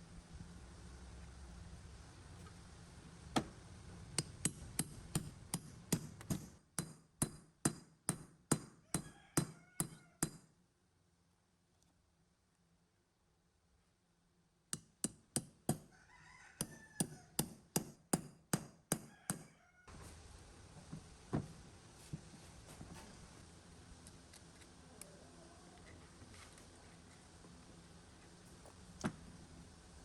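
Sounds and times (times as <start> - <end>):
rooster crowing: 8.8 - 10.3, 15.8 - 17.4, 19.0 - 20.0.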